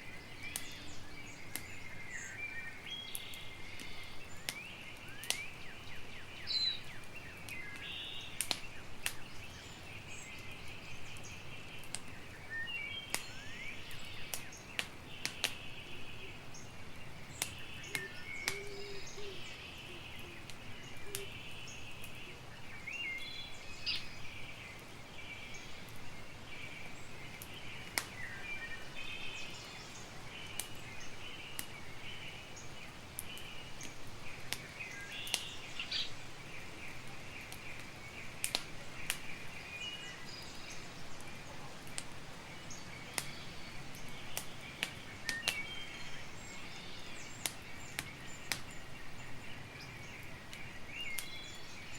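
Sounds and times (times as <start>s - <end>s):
birds chirping: 0.0s - 51.9s
campfire crackling: 0.0s - 51.9s.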